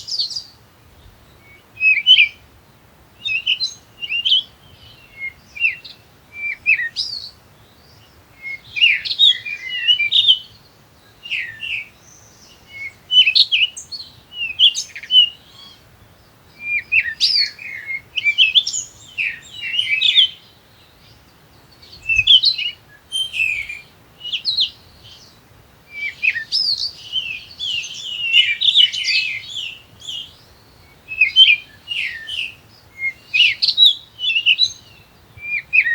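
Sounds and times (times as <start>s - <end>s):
bird chirping and twittering: 3.2s - 35.9s.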